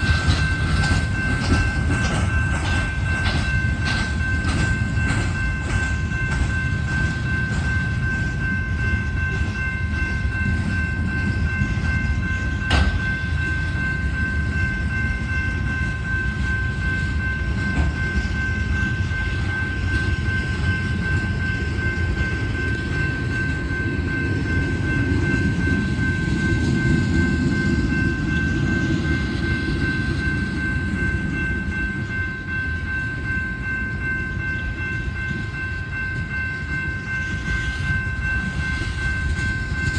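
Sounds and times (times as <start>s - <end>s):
wheels clicking over rail joints: 0.0s - 14.9s
freight train rumbling past: 0.0s - 39.9s.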